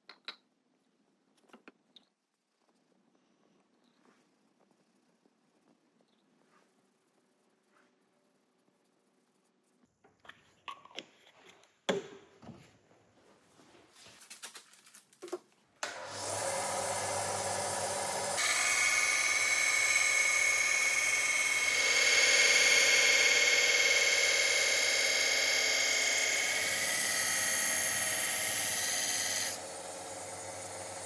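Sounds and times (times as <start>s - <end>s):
power tool running: 15.8s - 31.0s.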